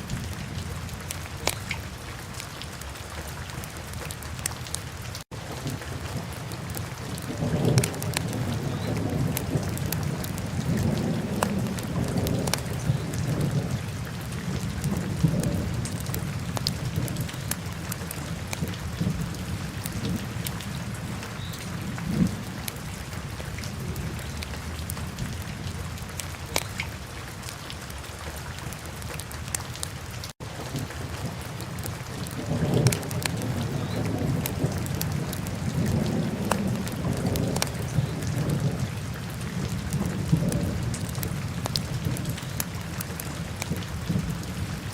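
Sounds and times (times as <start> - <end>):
fire crackling and popping: 1.0 - 1.8, 26.1 - 26.9, 31.7 - 38.7, 39.6 - 44.4.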